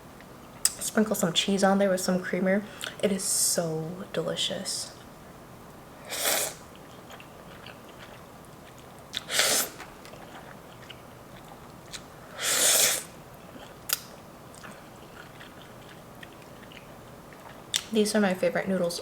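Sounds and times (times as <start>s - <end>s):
noodle slurping: 6.1s - 6.6s, 9.2s - 10.5s, 12.4s - 13.2s
soft chewing and mouth clicks: 6.7s - 12.2s, 13.4s - 18.0s.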